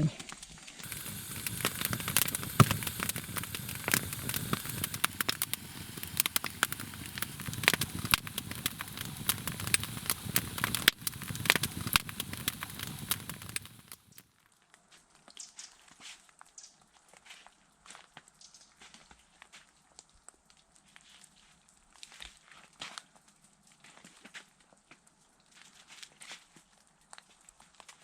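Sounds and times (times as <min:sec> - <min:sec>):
wood fire crackling and popping: 0:00.2 - 0:14.5
fire hissing: 0:00.8 - 0:14.2.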